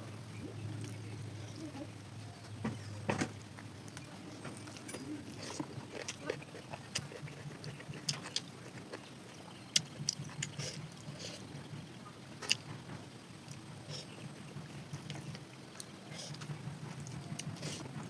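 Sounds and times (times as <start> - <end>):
steady low hum: 0.0 - 18.0
chewing with lip smacks: 3.5 - 11.7, 12.4 - 12.8, 13.4 - 18.0.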